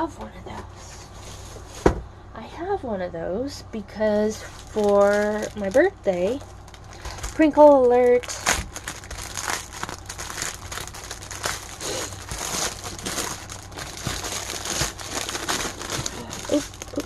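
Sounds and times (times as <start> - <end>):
plastic bags crinkling and rattling: 4.2 - 17.0.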